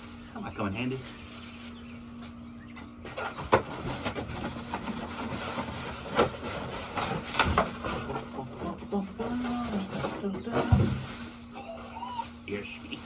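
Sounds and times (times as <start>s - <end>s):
steady low hum: 0.0s - 13.0s
packaging rustling and scraping: 3.1s - 13.0s.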